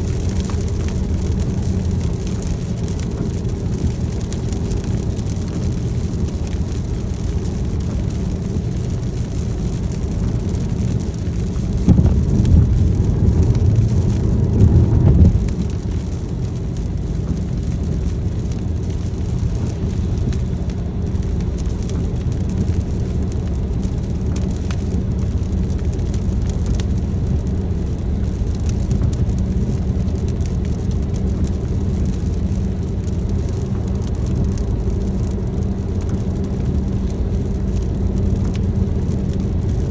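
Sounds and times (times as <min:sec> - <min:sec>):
car engine and road noise: 0:00.0 - 0:39.9
rain hissing: 0:00.0 - 0:39.9
low rush: 0:09.9 - 0:21.6.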